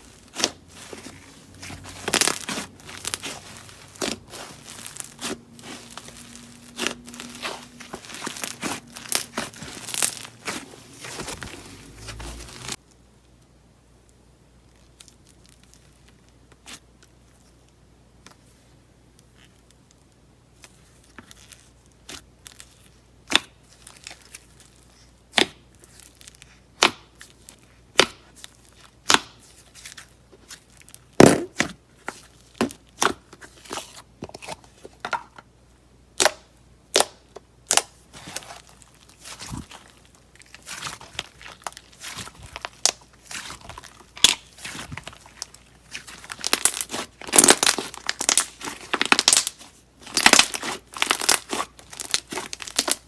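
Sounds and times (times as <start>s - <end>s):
slime crinkly tearing stretch: 0.0s - 12.8s, 14.7s - 17.5s, 36.9s - 53.0s.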